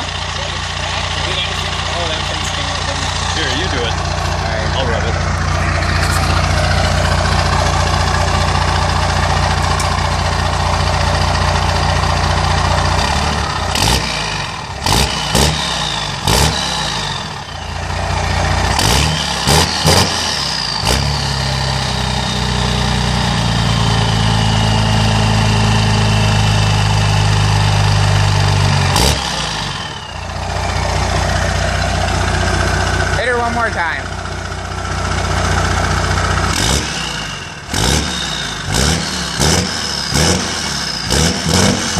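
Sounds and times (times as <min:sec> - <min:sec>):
engine knocks: 0:00.0 - 0:16.7
diesel engine running: 0:00.0 - 0:41.9.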